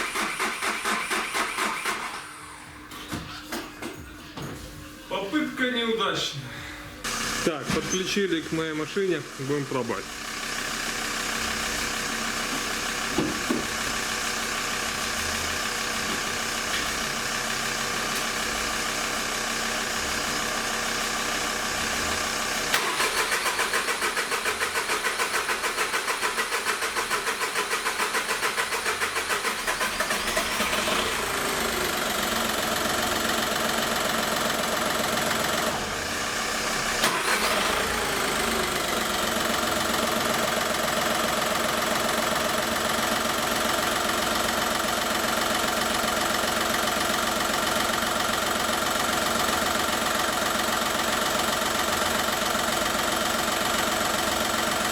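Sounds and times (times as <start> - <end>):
diesel engine cranking and starting: 0.0 - 3.5, 7.0 - 54.9.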